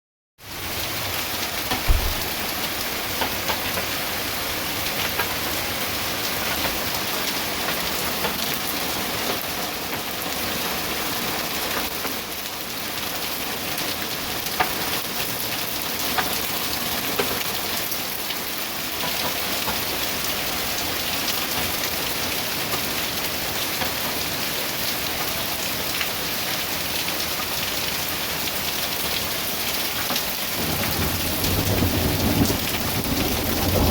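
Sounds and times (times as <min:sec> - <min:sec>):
hail and rain on hard surfaces: 0:00.6 - 0:33.9
dull thump: 0:01.7 - 0:02.4.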